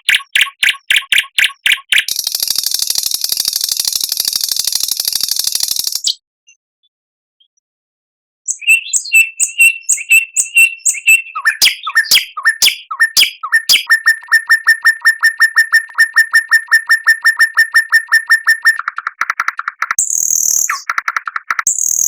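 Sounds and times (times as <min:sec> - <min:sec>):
songbird singing: 0:00.0 - 0:07.6, 0:08.5 - 0:22.0.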